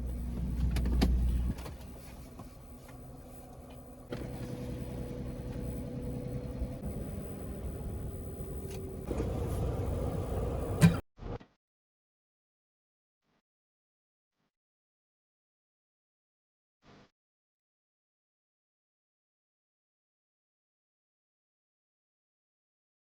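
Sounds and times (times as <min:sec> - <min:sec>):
van engine and road noise: 0:00.0 - 0:11.0.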